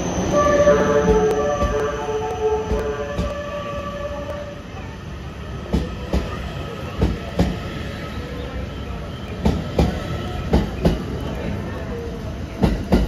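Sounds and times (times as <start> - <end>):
train rolling rumble: 0.0 - 13.0
train wheel clacks: 7.0 - 7.6, 9.4 - 11.2, 12.6 - 13.0.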